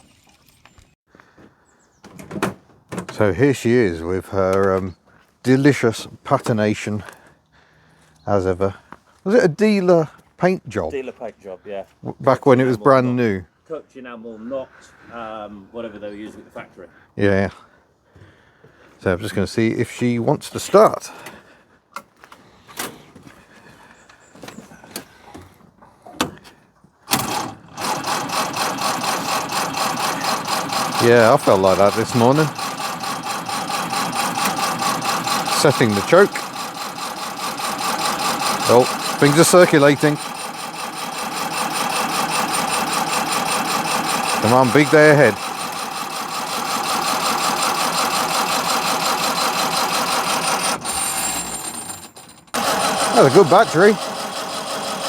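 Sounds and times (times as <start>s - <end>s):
car starter cranking engine: 27.1s - 55.0s.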